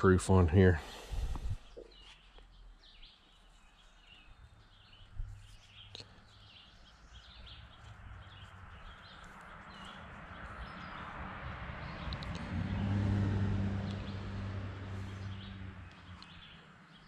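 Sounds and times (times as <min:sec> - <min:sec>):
small birds chirping: 0:00.0 - 0:13.1, 0:13.7 - 0:17.0
faint clicks: 0:12.1 - 0:12.5, 0:15.8 - 0:16.4.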